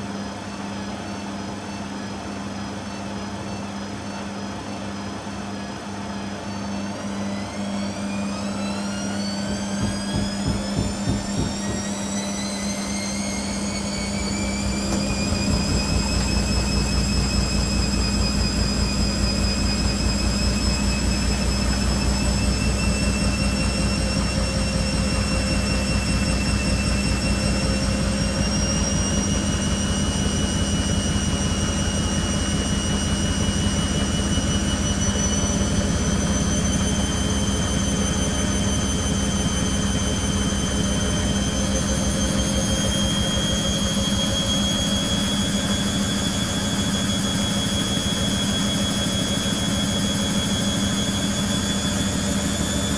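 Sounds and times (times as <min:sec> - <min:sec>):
washing machine motor whine: 0:00.0 - 0:52.9
steady low hum: 0:00.9 - 0:52.9.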